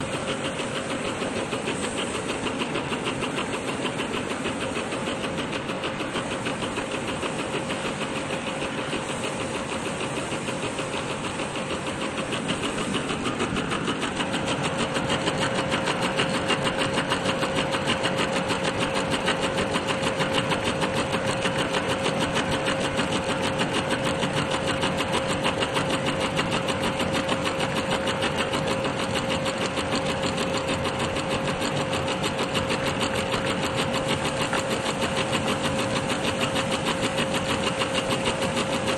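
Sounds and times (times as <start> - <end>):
steady hum: 0.0 - 25.0
sewing machine stitching: 0.0 - 38.9.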